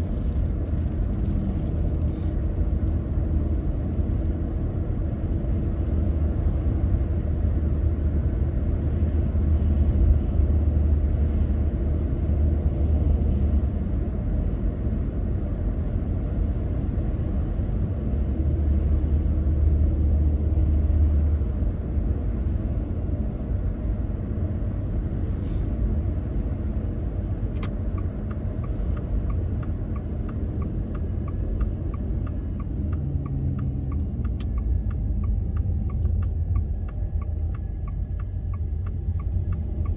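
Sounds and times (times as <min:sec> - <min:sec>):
car road and engine rumble: 0:00.0 - 0:39.9
turn indicator ticking: 0:27.6 - 0:39.9.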